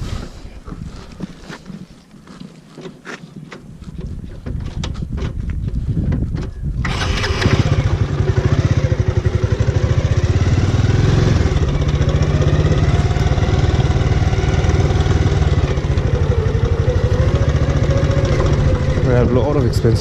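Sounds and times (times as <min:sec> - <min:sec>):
motorcycle engine idling: 0:06.9 - 0:20.0.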